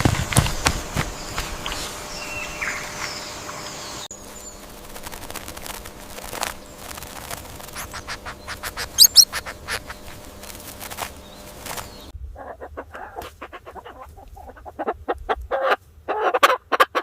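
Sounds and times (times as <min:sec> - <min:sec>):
bird chirps: 0:00.6 - 0:05.2, 0:07.6 - 0:10.2
scratching and clicking: 0:04.6 - 0:11.9.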